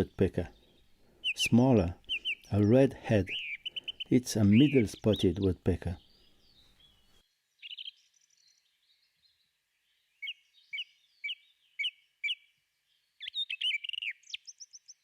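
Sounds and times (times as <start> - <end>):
bird calling: 0.0 - 7.9, 13.2 - 15.0.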